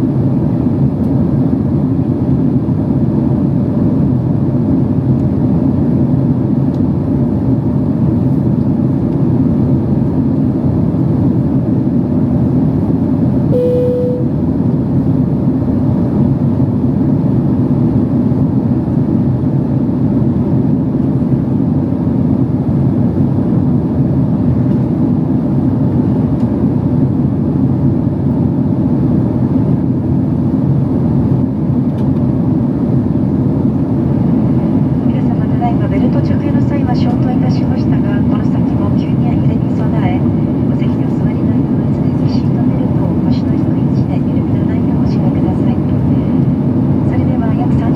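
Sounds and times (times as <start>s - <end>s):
short tone: 13.5s - 14.5s.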